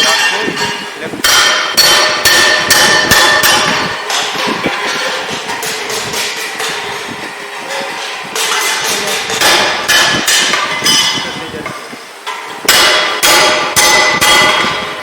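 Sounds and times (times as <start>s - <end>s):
sharp metallic strikes ringing: 0.0s - 6.8s.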